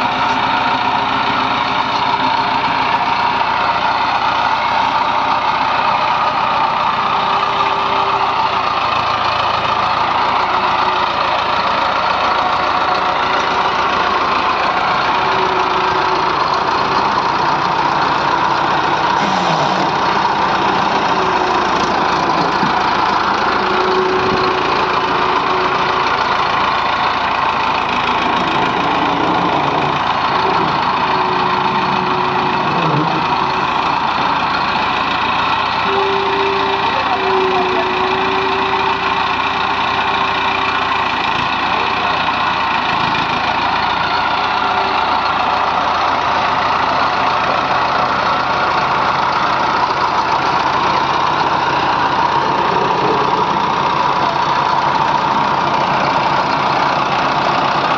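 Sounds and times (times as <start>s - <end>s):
diesel engines running: 0.0s - 57.9s
thin high tone: 35.8s - 39.2s.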